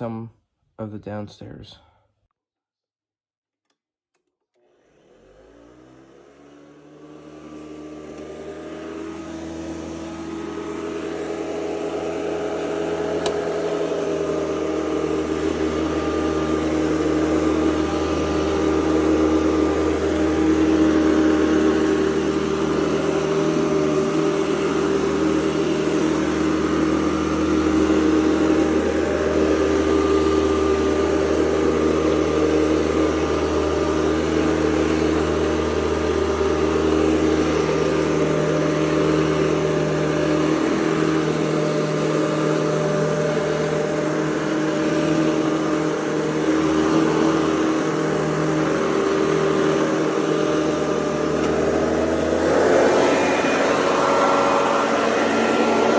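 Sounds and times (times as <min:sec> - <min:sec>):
vacuum cleaner running: 0:04.5 - 0:55.9.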